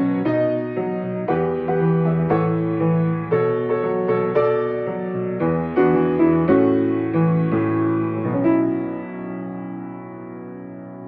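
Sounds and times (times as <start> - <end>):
solo piano chords: 0.0 - 11.0.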